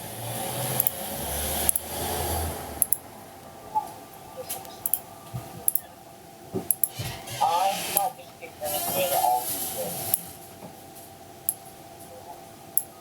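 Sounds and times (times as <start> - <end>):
computer mouse and keyboard clicks: 0.8 - 1.0.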